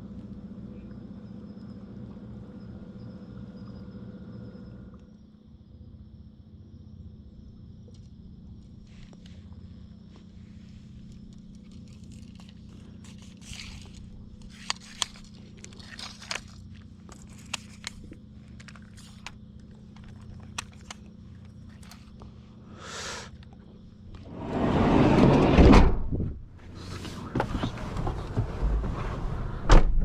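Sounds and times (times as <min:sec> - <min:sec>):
short scrapes: 0:24.2 - 0:25.9
swishing scrape: 0:24.2 - 0:25.9.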